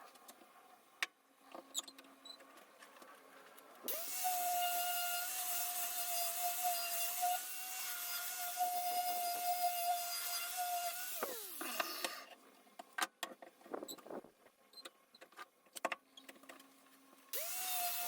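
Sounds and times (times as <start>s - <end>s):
angle grinder whining: 3.9s - 12.3s, 17.4s - 18.0s.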